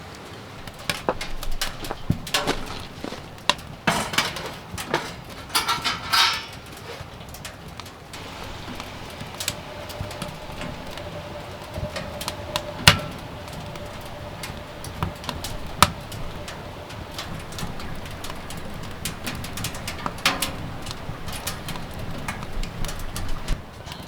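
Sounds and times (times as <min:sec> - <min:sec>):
faint steady hum: 0:08.1 - 0:24.0.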